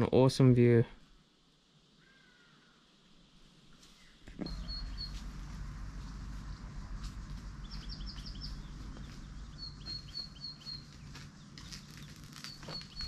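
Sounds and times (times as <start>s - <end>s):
wild birds calling: 1.9s - 2.9s, 3.9s - 13.0s
low steady rumble: 4.3s - 13.0s.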